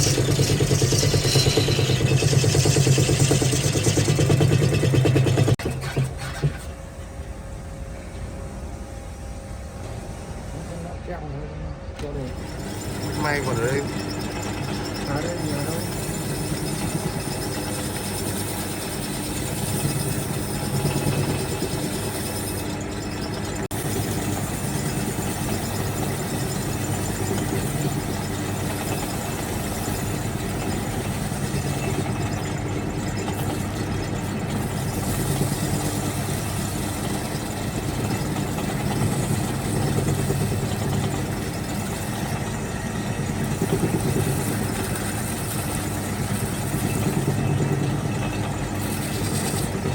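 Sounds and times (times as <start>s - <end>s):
wood lathe running: 0.0s - 6.6s, 12.0s - 49.9s.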